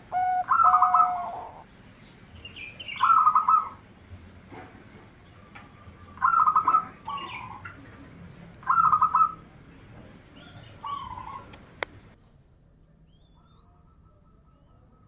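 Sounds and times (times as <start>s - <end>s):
dove cooing: 0.0s - 1.6s, 2.9s - 3.9s, 5.4s - 9.5s, 10.3s - 12.2s.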